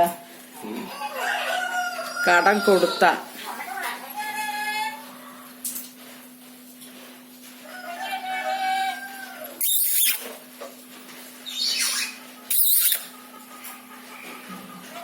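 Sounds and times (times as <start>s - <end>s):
parakeet calling: 9.6s - 10.2s, 11.4s - 13.1s
parakeet harsh screeches: 9.6s - 10.3s, 11.4s - 13.1s.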